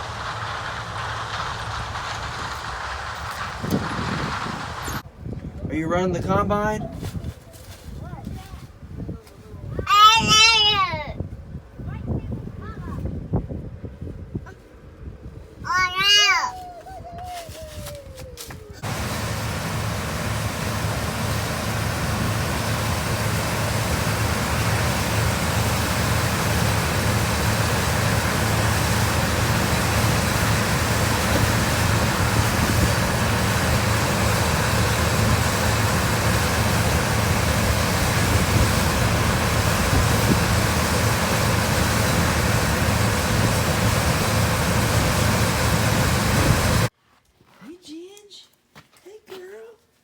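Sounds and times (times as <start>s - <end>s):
engine running steadily: 0.0s - 5.0s, 18.8s - 46.9s.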